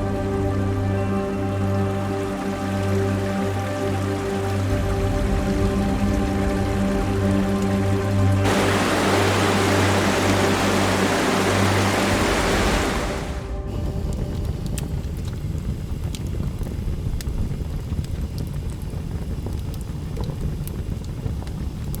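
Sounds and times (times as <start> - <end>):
background music: 0.0 - 15.7
waterfall rushing: 1.9 - 13.7
low rumble: 4.2 - 17.9.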